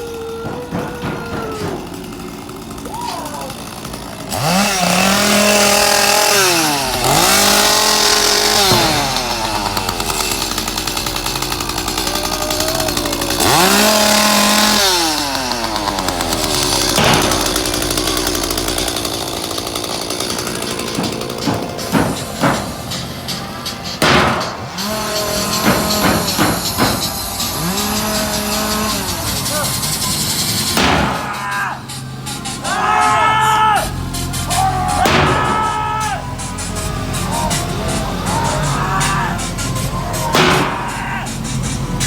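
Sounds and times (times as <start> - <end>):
chainsaw revving: 0.0 - 42.0
sharp knocks: 0.4 - 2.4, 16.4 - 19.2, 19.8 - 23.0, 24.0 - 25.0, 25.6 - 27.1, 30.8 - 31.4.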